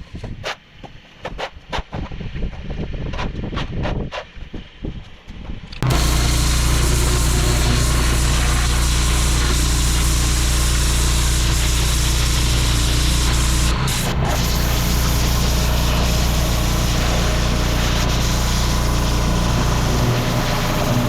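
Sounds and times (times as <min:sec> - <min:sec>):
high-pressure water jet hissing: 0:05.8 - 0:21.0
pressure washer engine drone: 0:05.8 - 0:21.0.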